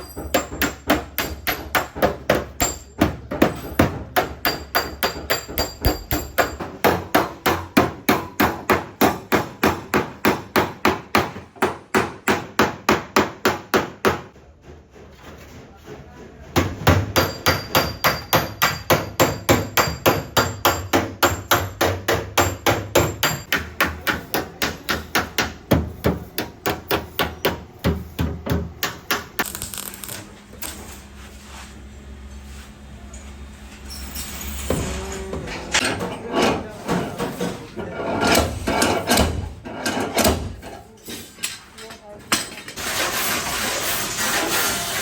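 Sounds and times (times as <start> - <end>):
hammer striking sheet metal: 16.6 - 30.1, 38.2 - 40.6.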